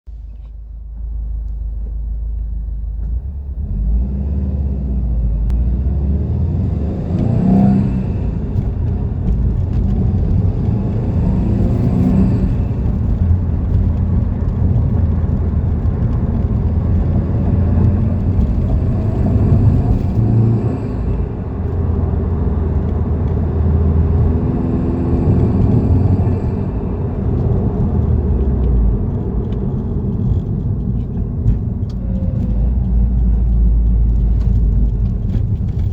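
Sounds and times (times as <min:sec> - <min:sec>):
car engine running: 0:00.1 - 0:35.9.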